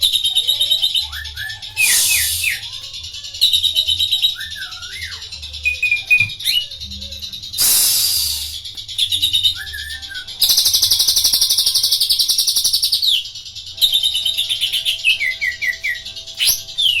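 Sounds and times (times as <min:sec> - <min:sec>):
bird singing fast trill: 0:00.0 - 0:17.0.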